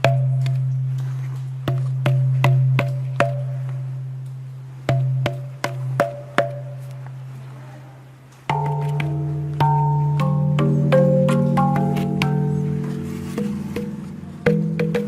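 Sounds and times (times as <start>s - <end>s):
drip-like plinking notes: 0.0s - 6.8s, 8.5s - 15.0s
sustained chord tones: 8.5s - 15.0s.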